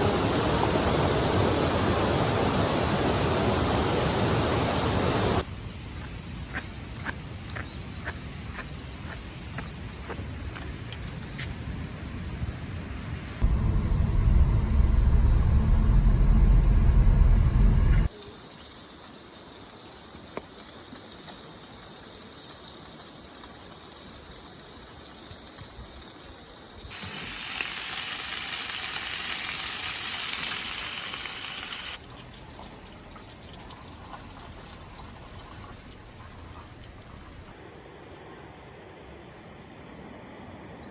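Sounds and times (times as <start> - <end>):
heavy rain pouring: 0.0 - 5.4, 18.1 - 32.1
loud low rumble: 13.4 - 18.1.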